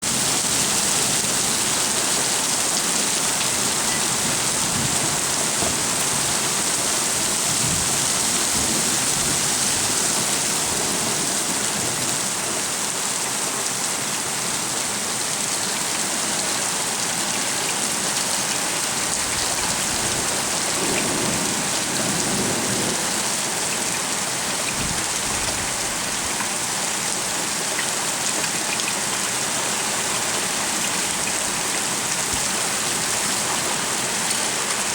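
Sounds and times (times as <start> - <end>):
heavy rain pouring: 0.0 - 34.9
low rumbles of thunder: 19.3 - 23.2.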